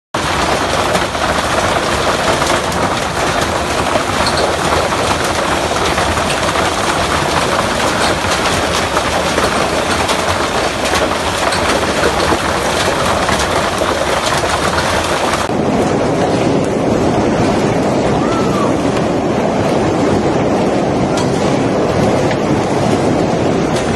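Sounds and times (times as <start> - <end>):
hail pelting hard surfaces: 0.2 - 15.5
torrential rain rushing: 0.2 - 23.9.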